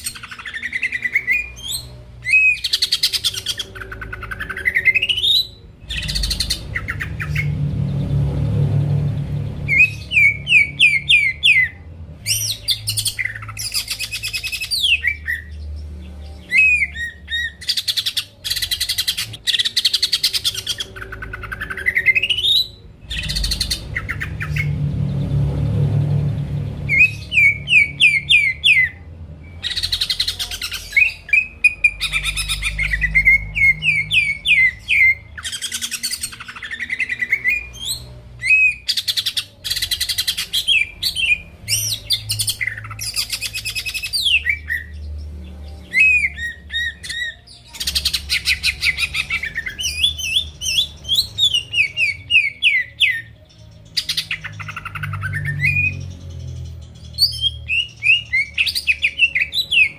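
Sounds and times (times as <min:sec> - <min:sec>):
faint low hum: 0:00.0 - 0:17.6, 0:18.4 - 0:38.5
leafbird whistled song: 0:00.0 - 0:59.9.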